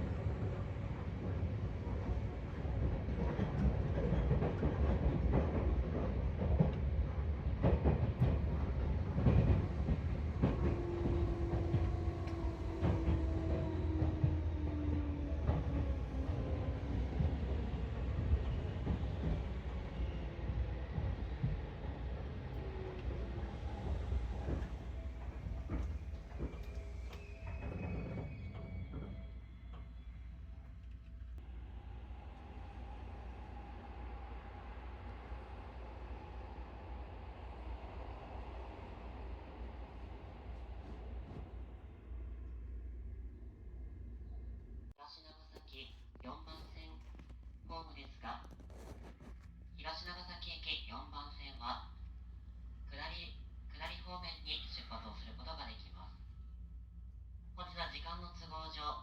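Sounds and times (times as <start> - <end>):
train rumble: 0.0 - 45.0
train wheels clacking over joints: 2.8 - 6.9.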